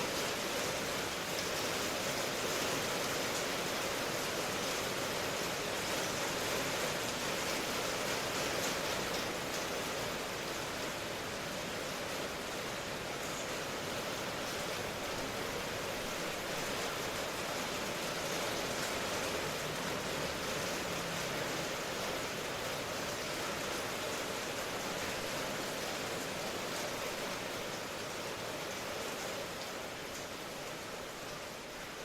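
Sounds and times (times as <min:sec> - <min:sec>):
steady rain hiss: 0:00.0 - 0:32.0.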